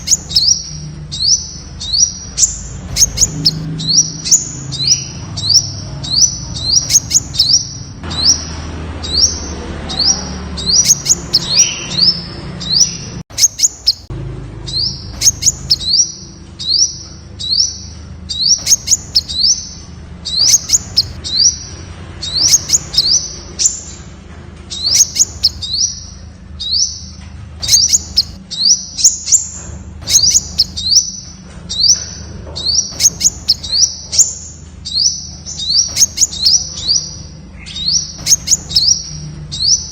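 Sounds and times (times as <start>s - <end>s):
sharp high bird ticks: 0.0s - 7.8s, 10.6s - 12.0s, 12.8s - 14.1s, 14.9s - 23.9s, 24.6s - 26.1s, 26.8s - 32.1s, 32.8s - 36.8s, 38.0s - 39.2s
bird calling high rising notes: 0.0s - 14.1s.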